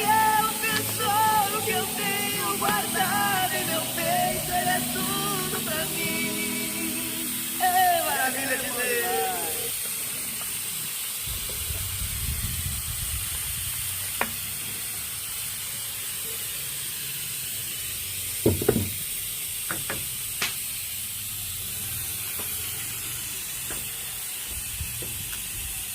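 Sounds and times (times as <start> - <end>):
food sizzling in a pan: 0.0 - 25.9.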